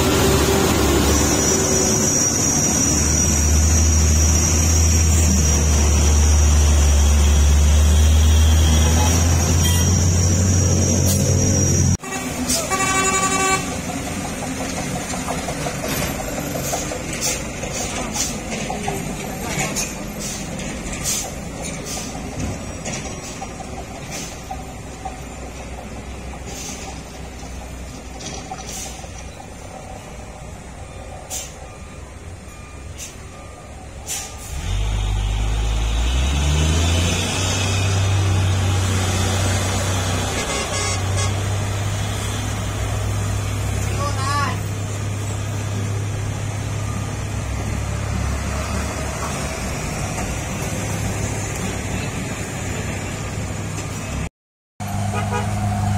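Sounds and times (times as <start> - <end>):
diesel truck engine revving: 0.0 - 16.0, 34.4 - 54.2
diesel truck traffic: 0.0 - 55.9.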